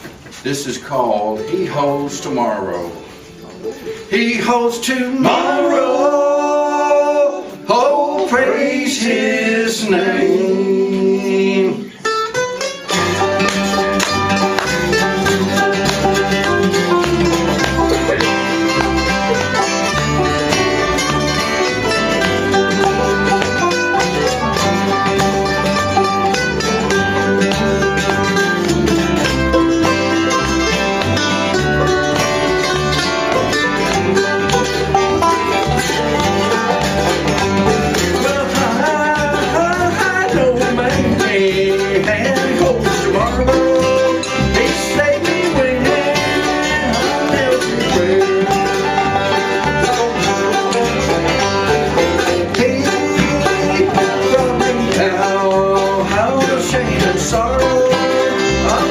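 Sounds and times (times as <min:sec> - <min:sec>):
banjo picking: 0:00.0 - 0:58.9
guitar picking: 0:01.2 - 0:58.9
steady bass beat: 0:13.1 - 0:57.8.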